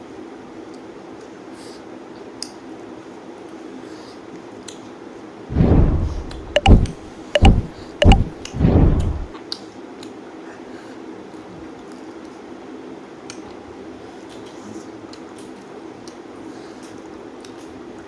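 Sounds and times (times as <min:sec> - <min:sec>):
sharp clicks: 0:05.5 - 0:09.3.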